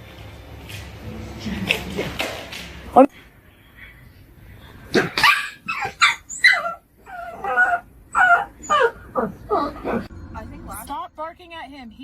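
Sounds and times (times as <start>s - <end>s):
dog barking and yipping: 5.0s - 10.1s
dog whining: 5.0s - 10.1s.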